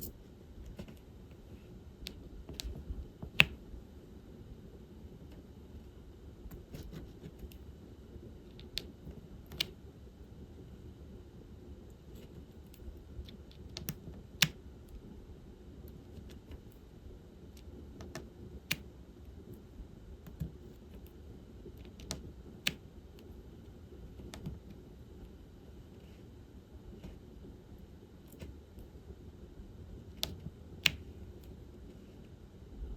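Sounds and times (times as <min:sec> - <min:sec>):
low room hum: 0:00.0 - 0:32.9
small plastic clicks and taps: 0:02.0 - 0:03.6, 0:12.7 - 0:14.6, 0:18.0 - 0:18.9, 0:21.8 - 0:22.8, 0:30.2 - 0:31.1.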